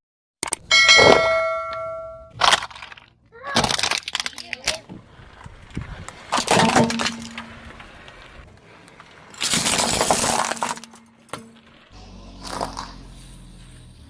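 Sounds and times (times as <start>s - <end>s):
objects crunching under car tire: 2.3s - 13.4s
sharp crack: 6.0s - 13.0s.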